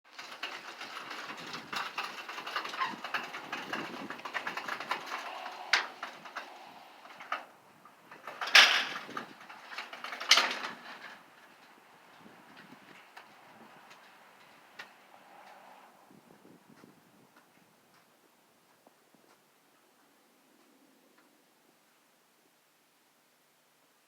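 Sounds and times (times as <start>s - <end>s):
mechanical rattling and clicking: 0.1s - 7.4s.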